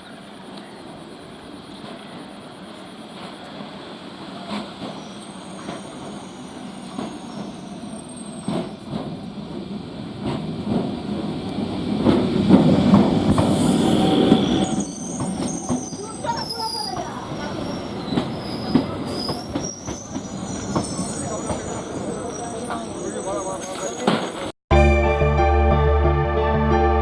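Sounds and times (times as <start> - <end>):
train rumbling on track: 0.0 - 25.0
high-pitched wheel squeal: 13.4 - 24.4.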